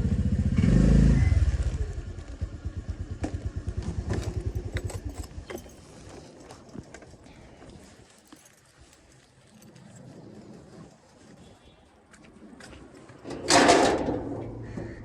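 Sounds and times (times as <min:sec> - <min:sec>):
motorcycle engine running: 0:00.0 - 0:05.8.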